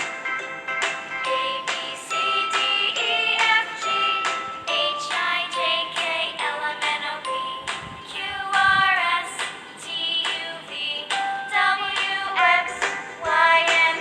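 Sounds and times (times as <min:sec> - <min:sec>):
children's song: 0:00.0 - 0:14.0.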